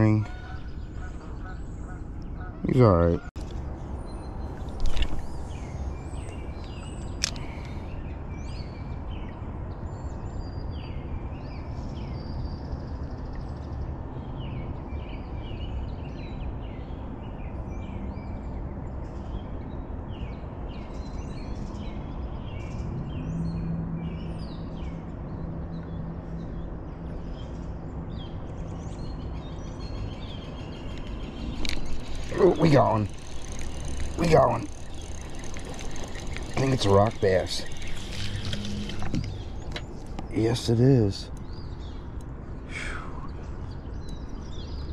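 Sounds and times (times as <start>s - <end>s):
songbirds chirping: 0.0s - 44.9s
sharp click: 6.6s - 7.5s
low steady hum: 22.2s - 44.9s.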